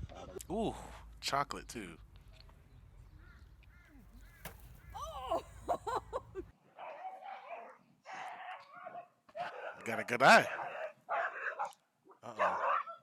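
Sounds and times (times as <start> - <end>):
dog barking roughly: 6.8 - 11.7, 12.4 - 13.0.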